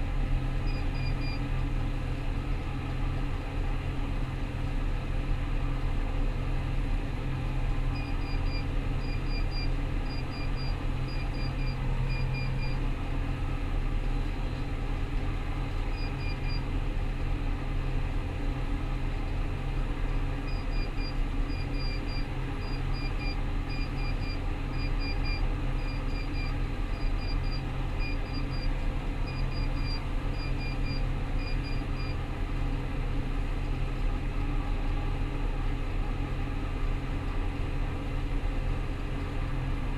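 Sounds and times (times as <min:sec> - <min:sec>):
combine harvester drone: 0:00.0 - 0:39.9
electronic warning double beeps: 0:08.0 - 0:12.8, 0:15.9 - 0:16.6, 0:20.5 - 0:28.7, 0:29.3 - 0:32.2.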